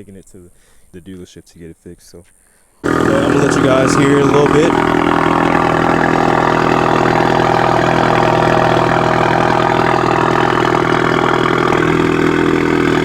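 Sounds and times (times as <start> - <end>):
car engine idling: 2.8 - 13.0.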